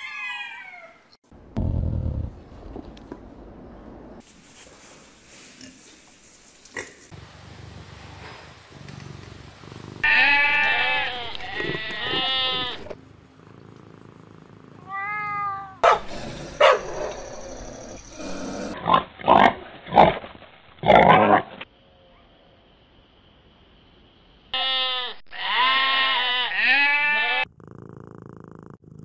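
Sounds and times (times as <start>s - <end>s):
dog barking: 15.8s - 17.2s.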